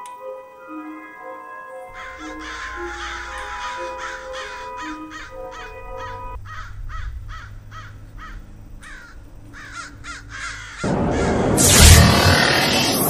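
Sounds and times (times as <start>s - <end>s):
background music with held notes: 0.0s - 6.4s
bird calling: 1.9s - 11.6s.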